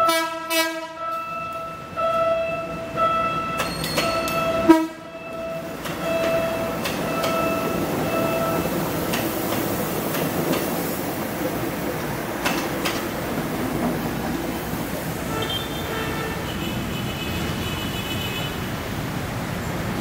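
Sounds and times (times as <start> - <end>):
train rumble: 0.0 - 17.8
wheel clacks over rail joints: 3.6 - 4.6, 5.8 - 15.0.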